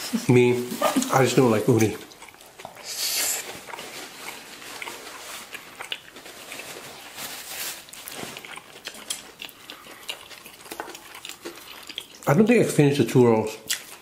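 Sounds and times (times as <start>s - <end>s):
paper napkin rustling: 0.0s - 1.7s, 6.1s - 8.4s
wet mouth sounds: 0.0s - 7.1s, 8.0s - 12.4s
crunchy chewing: 0.8s - 12.8s, 13.4s - 14.0s.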